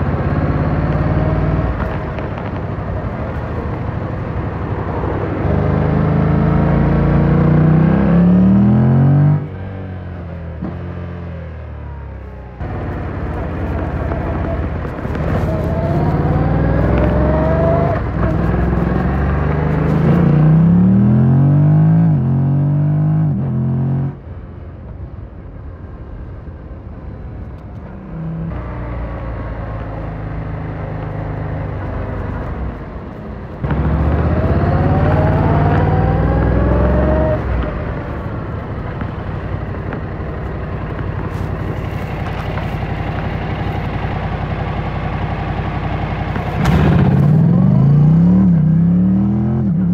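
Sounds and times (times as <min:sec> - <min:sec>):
motorcycle engine accelerating: 0:00.0 - 0:24.2, 0:27.8 - 0:49.9.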